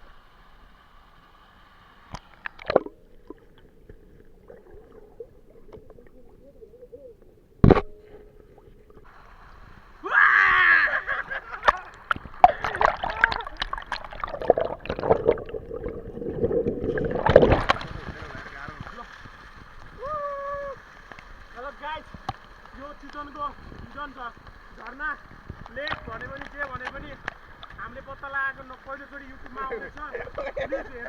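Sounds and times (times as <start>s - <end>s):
water splashing and sloshing: 2.0s - 10.0s, 10.9s - 20.0s.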